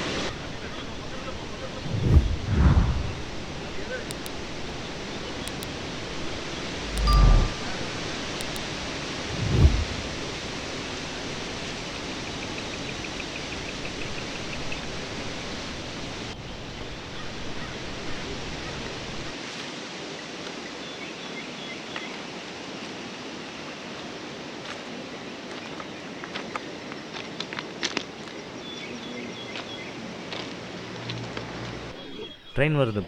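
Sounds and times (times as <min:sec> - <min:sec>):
steady hiss: 0:00.0 - 0:19.3.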